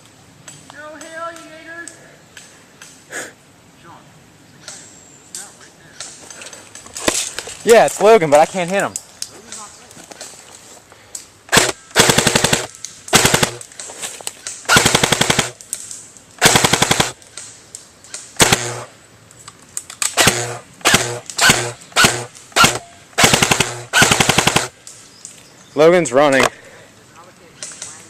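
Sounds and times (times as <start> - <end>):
airsoft gun firing bursts: 11.5 - 13.7, 14.7 - 15.6, 16.4 - 17.2, 18.4 - 18.9, 20.1 - 24.8.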